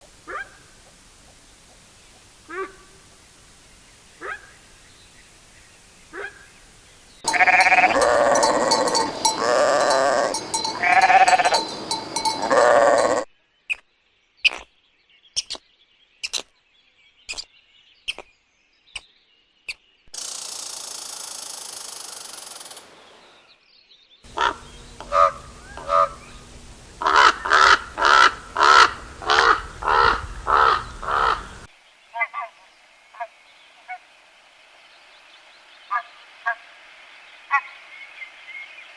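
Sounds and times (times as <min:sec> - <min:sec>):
steady hiss: 0:00.0 - 0:06.0, 0:24.6 - 0:27.3, 0:31.5 - 0:38.9
faint short calls: 0:07.3 - 0:13.3
sheep bleating: 0:07.3 - 0:13.3.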